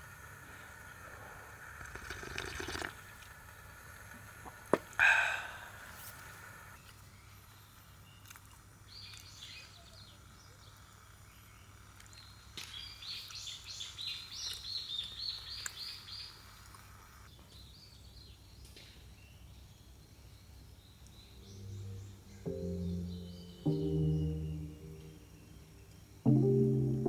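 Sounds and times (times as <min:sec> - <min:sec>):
faint background hum: 0:00.0 - 0:27.0
high bird chirps: 0:21.0 - 0:26.2.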